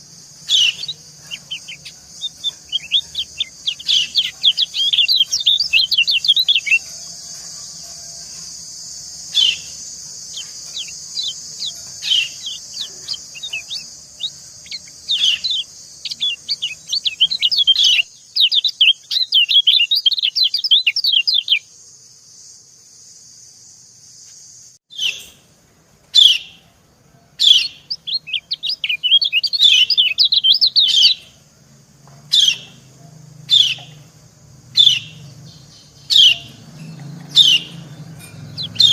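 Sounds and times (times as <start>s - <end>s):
steady high hiss: 0.0s - 18.5s
birds chirping: 0.0s - 21.7s, 27.4s - 31.5s, 32.1s - 38.9s.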